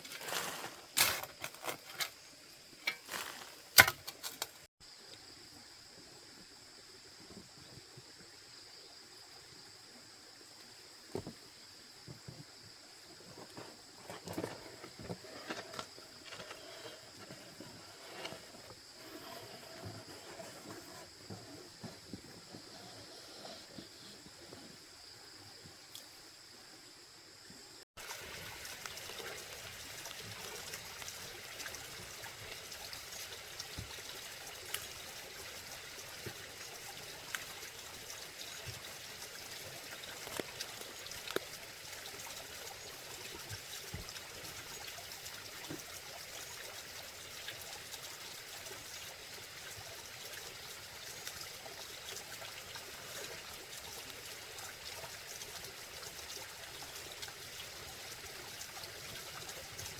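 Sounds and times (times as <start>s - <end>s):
water trickling: 28.0s - 59.9s.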